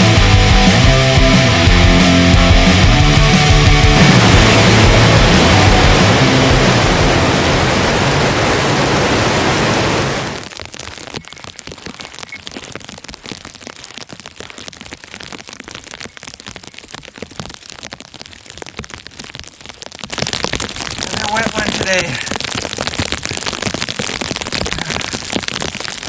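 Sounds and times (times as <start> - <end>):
loud rushing noise: 0.0 - 10.4
rain pattering: 0.0 - 26.0.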